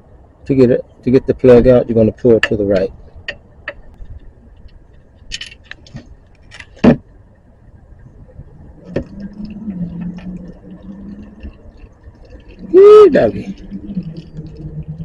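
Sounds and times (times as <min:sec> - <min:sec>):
faint low steady hum: 0:00.0 - 0:15.0.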